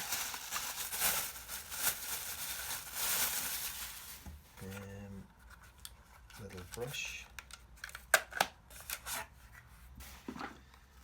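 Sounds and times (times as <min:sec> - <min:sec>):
packaging rustling and crinkling: 0:00.0 - 0:04.9.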